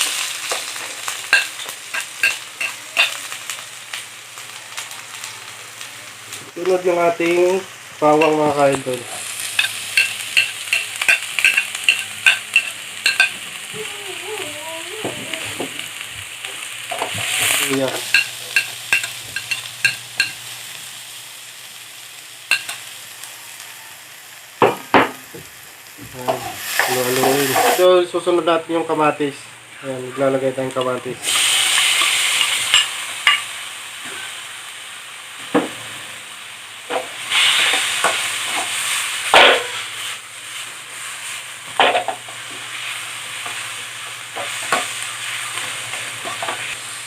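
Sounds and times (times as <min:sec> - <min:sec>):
onion sizzling in hot oil: 0:00.0 - 0:47.0
spatula clinking against pan: 0:09.6 - 0:13.4.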